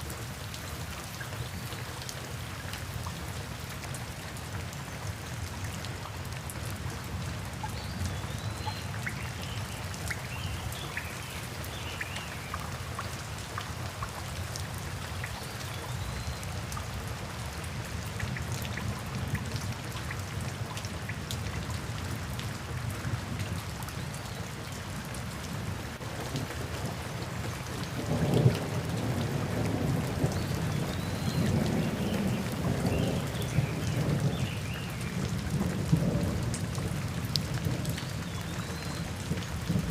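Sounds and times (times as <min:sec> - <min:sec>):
steady rainfall: 0:00.0 - 0:39.9
low rumble of thunder: 0:27.8 - 0:38.4, 0:39.0 - 0:39.9.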